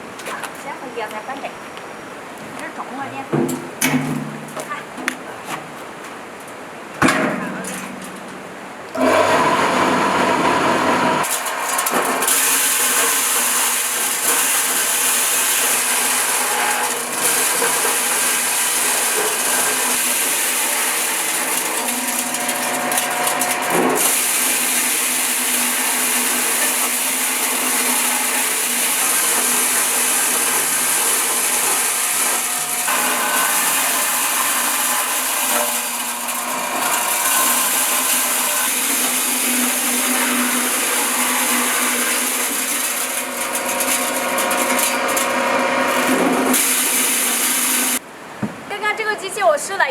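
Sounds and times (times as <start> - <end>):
corn sheller whirring rattle: 9.0 - 48.0.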